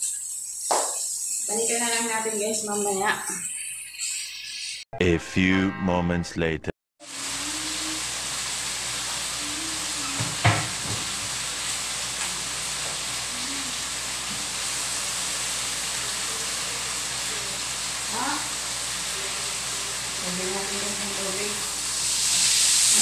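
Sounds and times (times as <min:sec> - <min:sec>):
chicken frying in a wok: 0:00.0 - 0:04.8, 0:07.0 - 0:23.0.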